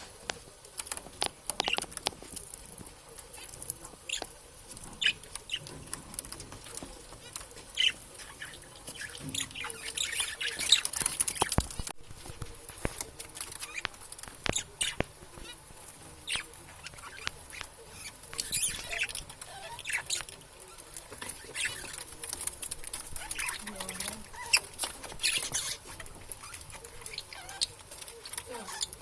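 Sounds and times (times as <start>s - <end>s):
budgerigars chattering: 4.9s - 11.8s, 13.6s - 20.3s.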